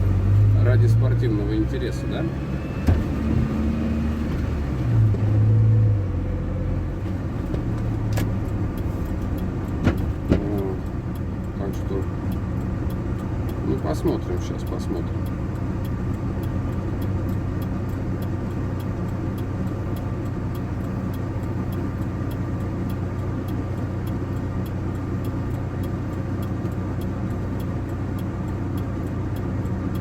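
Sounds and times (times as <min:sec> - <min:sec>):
engine running: 0:00.0 - 0:30.0
light engine ticking: 0:07.6 - 0:30.0.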